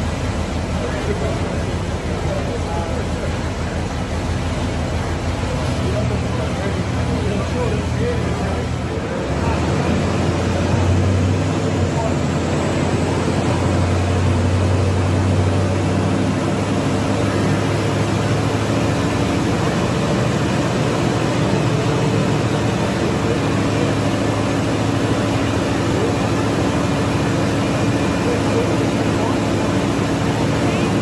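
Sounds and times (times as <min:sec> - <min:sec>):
car engine running: 0:00.0 - 0:31.0
large cooling fan rushing: 0:00.0 - 0:31.0.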